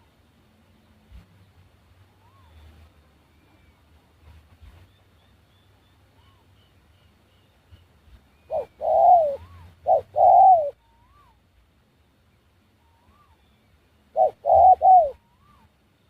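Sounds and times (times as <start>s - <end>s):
small birds whistling: 7.4s - 11.4s, 14.2s - 15.7s
dove cooing: 8.5s - 11.4s, 14.1s - 15.7s.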